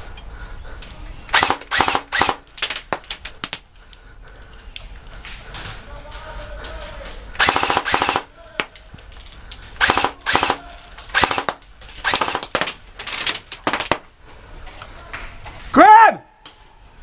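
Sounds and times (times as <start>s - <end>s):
airsoft rifle bursts: 1.3s - 3.5s, 6.2s - 8.8s, 9.8s - 14.0s.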